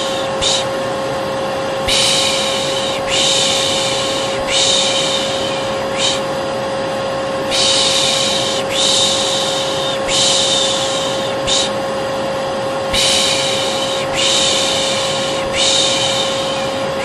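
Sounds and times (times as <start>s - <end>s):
person shushing: 0.0s - 0.8s, 1.9s - 6.3s, 7.5s - 11.8s, 12.9s - 17.0s
vacuum cleaner motor humming: 0.0s - 17.0s.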